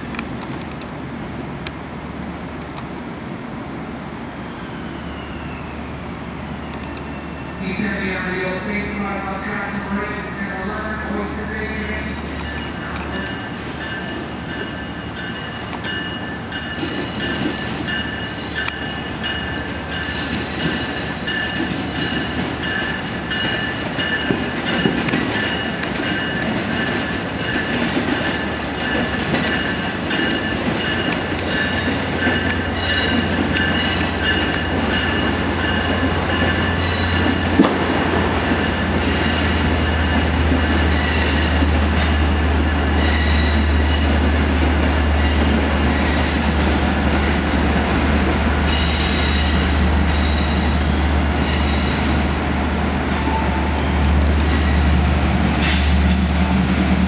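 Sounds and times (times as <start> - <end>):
deep steady train hum: 0.0 - 57.0
train wheels squealing: 4.4 - 5.9, 6.5 - 7.7, 12.4 - 37.4, 38.6 - 41.6, 42.8 - 44.2, 45.2 - 47.6, 48.7 - 54.8
clacks over rail joints: 15.4 - 39.0.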